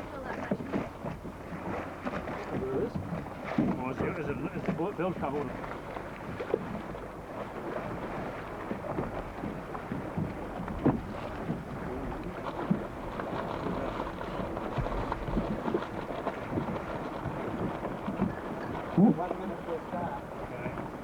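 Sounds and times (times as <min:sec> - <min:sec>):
water noise: 0:00.0 - 0:21.0
wind buffeting microphone: 0:07.6 - 0:21.0.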